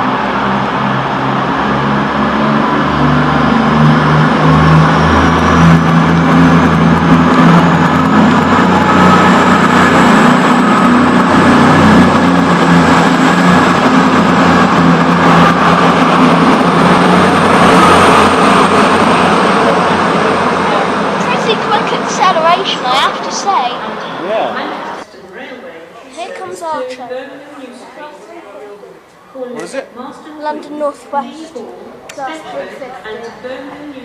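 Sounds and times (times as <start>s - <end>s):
high whine rising in pitch: 0.0s - 25.0s
diesel train engines accelerating: 0.0s - 25.1s.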